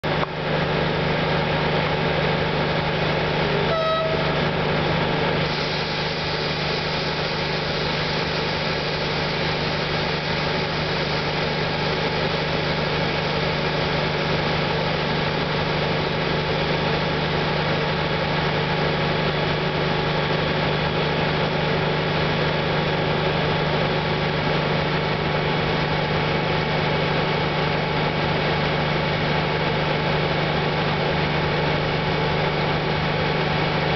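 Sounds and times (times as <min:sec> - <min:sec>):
train diesel engine running: 0:00.0 - 0:33.9
train horn toot: 0:03.7 - 0:04.5.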